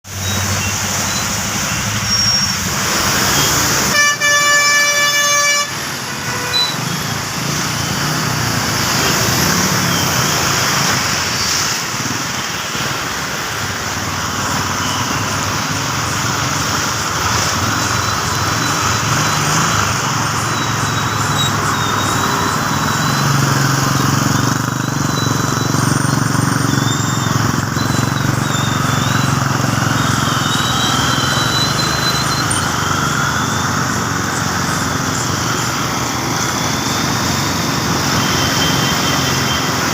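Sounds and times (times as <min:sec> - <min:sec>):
vehicle horn honking: 0:03.7 - 0:07.0.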